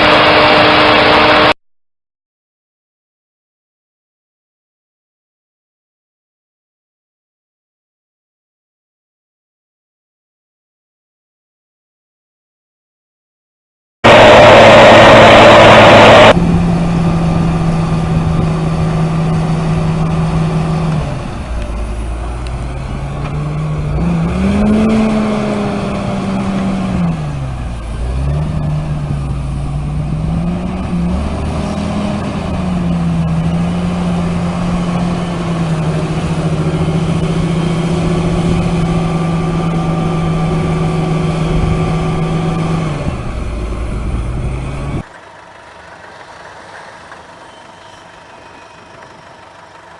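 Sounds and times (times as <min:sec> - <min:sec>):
vehicle engine revving: 0:00.0 - 0:01.6, 0:14.0 - 0:49.9.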